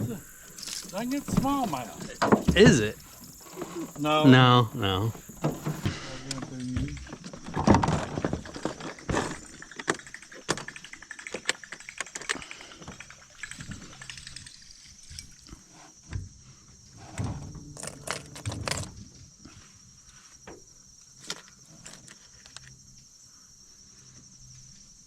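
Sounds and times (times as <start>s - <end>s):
high insect chirring: 0.0s - 7.6s, 8.7s - 15.6s.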